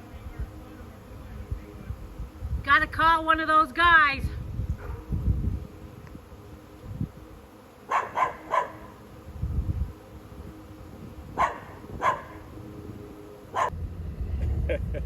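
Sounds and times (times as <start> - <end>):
buzz of honeybee swarm: 0.0 - 15.0
dog barking: 4.8 - 5.1, 7.9 - 9.0, 11.4 - 12.5, 13.5 - 13.7.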